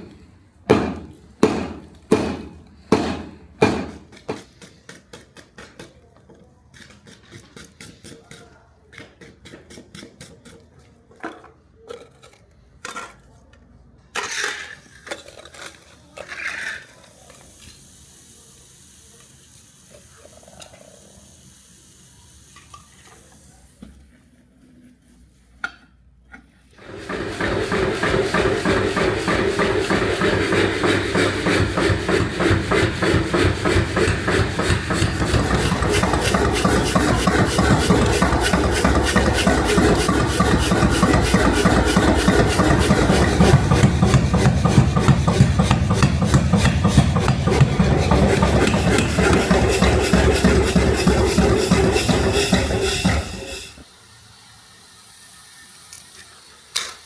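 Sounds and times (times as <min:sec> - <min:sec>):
abrasive metal scraping: 0:26.8 - 0:53.8.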